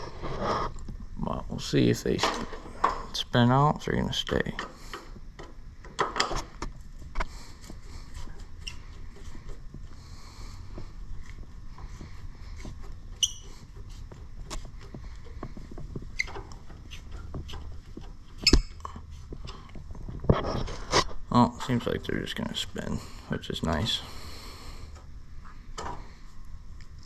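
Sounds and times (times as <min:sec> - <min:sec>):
metal squeak: 0:13.1 - 0:14.0.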